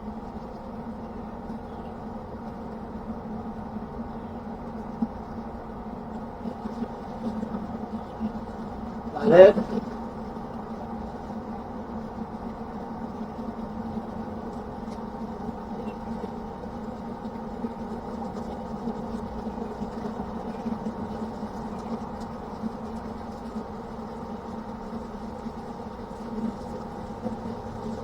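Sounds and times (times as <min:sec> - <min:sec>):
pellet grill motor hum: 0:00.0 - 0:28.0
faint ticks: 0:06.0 - 0:28.0.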